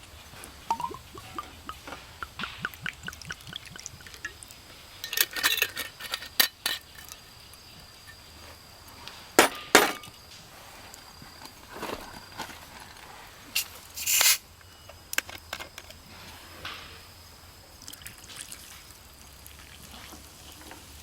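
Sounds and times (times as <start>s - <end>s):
camp gear clinking: 0.4s - 8.7s.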